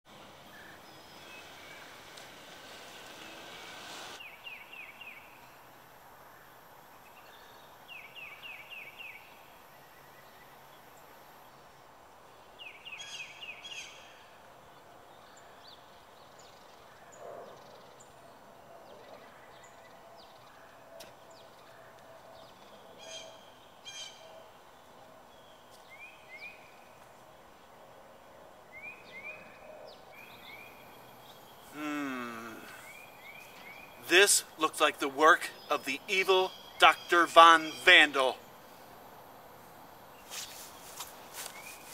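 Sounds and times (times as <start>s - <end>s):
bird chirping rapidly: 32.8s - 38.4s.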